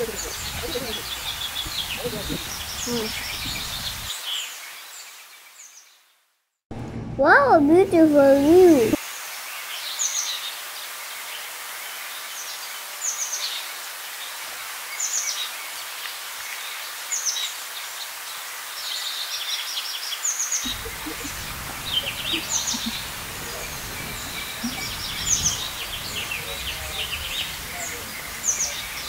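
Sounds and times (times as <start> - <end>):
small birds chirping: 0.0 - 6.1, 7.7 - 29.0
outdoor hiss: 0.0 - 6.2, 7.2 - 29.0
low rumble: 6.7 - 9.0.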